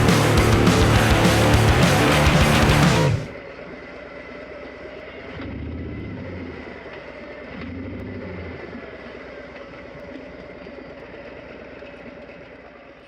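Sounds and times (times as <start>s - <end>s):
motorcycle engine rumbling: 0.0s - 3.6s.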